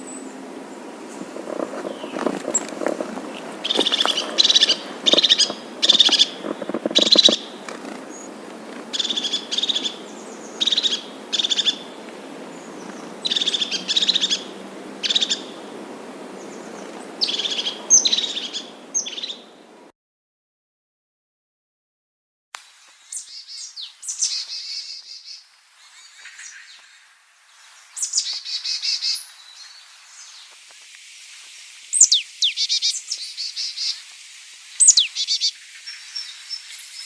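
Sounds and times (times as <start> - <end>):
bird rattling buzzy calls: 1.0 - 12.0.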